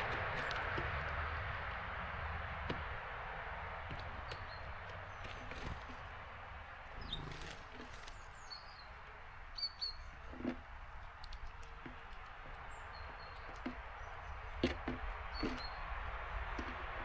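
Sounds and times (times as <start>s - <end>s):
small birds chirping: 0.0s - 17.0s
birds knocking on feeder: 9.8s - 17.0s.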